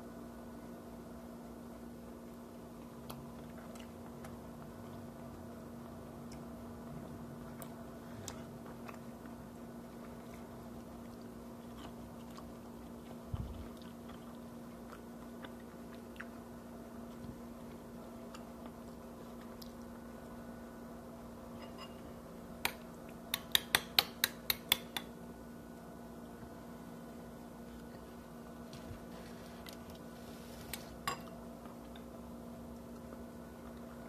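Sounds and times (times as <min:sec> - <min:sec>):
steady low hum: 0:00.0 - 0:34.0
person chewing food: 0:02.3 - 0:06.8, 0:07.4 - 0:20.3.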